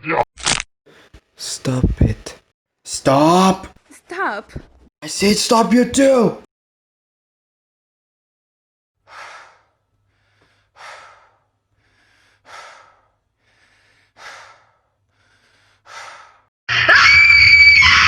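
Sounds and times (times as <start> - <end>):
person breathing heavily: 9.1 - 16.5.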